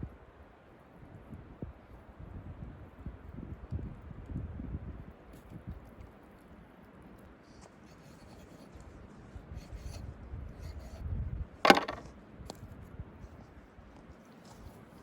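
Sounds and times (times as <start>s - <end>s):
handling and rubbing noises: 5.3s - 15.0s.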